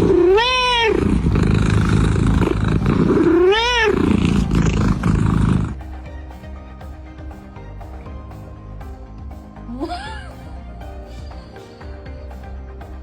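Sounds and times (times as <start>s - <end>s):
steady rough noise: 0.0s - 9.6s
cat meowing: 0.1s - 1.2s, 3.2s - 4.5s.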